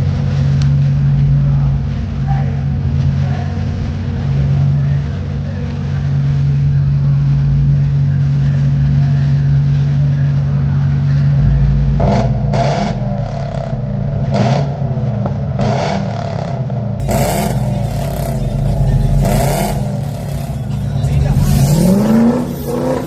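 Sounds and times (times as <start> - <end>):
car engine droning: 0.0 - 23.0
short loud engine bursts: 15.7 - 23.0.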